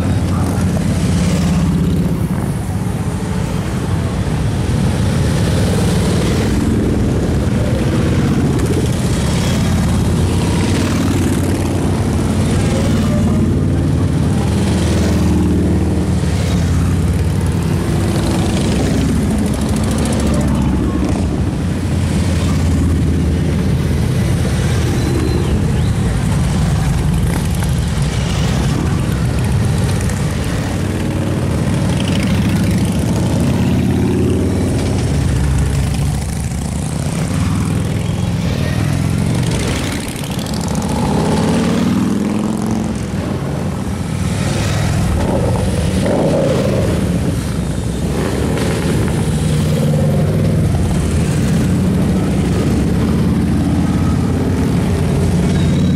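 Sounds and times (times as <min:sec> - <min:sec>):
motorcycles riding past: 0:00.0 - 0:55.9.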